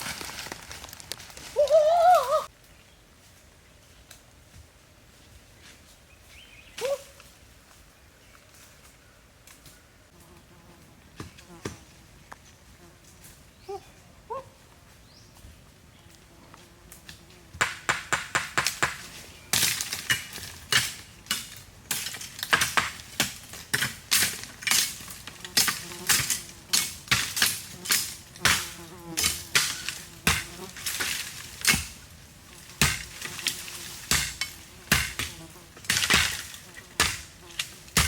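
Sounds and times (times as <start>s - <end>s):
hand tool striking material: 17.6s - 32.0s, 32.7s - 38.0s.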